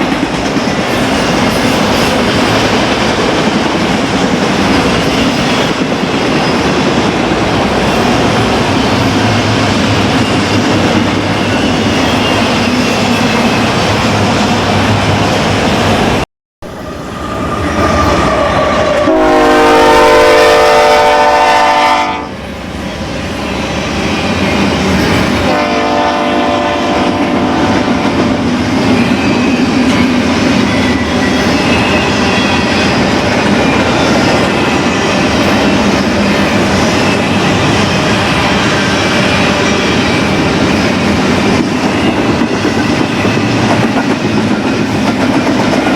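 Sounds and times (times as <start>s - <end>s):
rumble and clatter of train: 0.0s - 45.9s
locomotive air horn: 18.3s - 22.3s, 25.5s - 27.8s.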